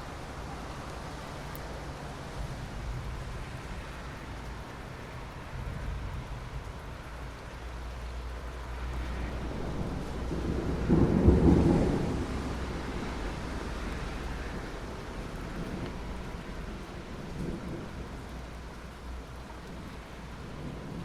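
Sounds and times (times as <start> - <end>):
steady rain: 0.0 - 21.0
thunder rumble: 8.9 - 21.0.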